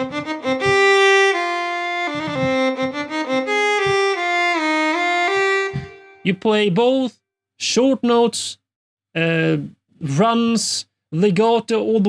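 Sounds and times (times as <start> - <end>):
solo bowed string melody: 0.0 - 6.4.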